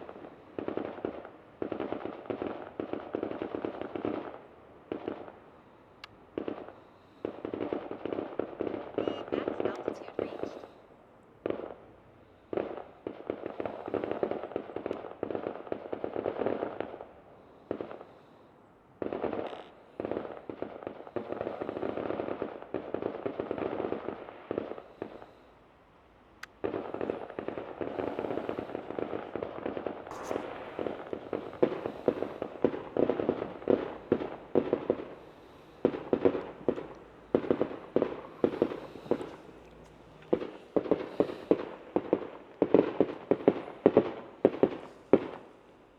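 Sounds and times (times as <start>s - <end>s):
fireworks crackling: 0.0s - 5.4s, 6.3s - 10.7s, 19.0s - 25.6s, 26.4s - 45.9s
fireworks bangs: 6.4s - 10.7s, 26.4s - 45.5s.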